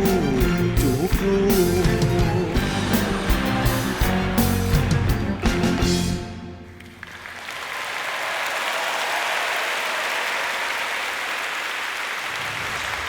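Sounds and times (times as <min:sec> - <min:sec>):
band playing: 0:00.0 - 0:07.2
audience applause: 0:02.4 - 0:13.0.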